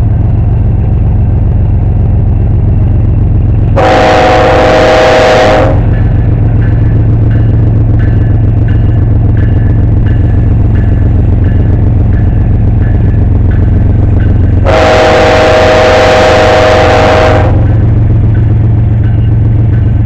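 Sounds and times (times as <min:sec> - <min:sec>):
diesel locomotives droning: 0:00.0 - 0:20.0
multi-tone train horn: 0:03.8 - 0:06.0, 0:14.6 - 0:17.8.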